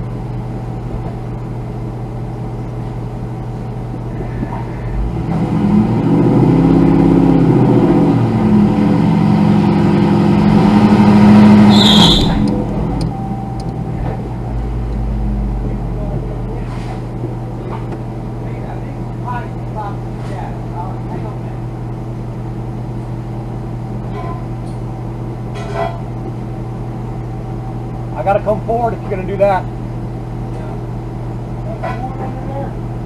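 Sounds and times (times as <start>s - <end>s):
car engine idling and revving: 2.5s - 18.4s
short high squeak: 11.7s - 12.5s.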